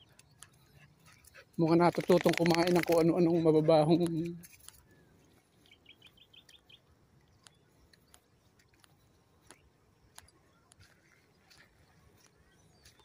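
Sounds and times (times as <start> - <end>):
faint clicks: 0.0 - 3.2, 7.2 - 13.0.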